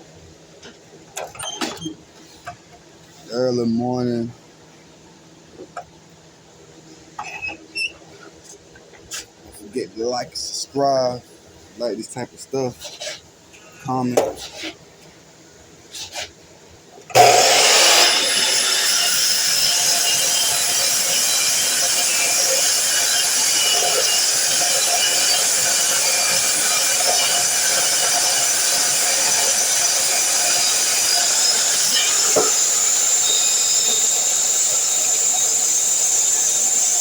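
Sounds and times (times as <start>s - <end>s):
miter saw running and cutting: 17.1s - 37.0s.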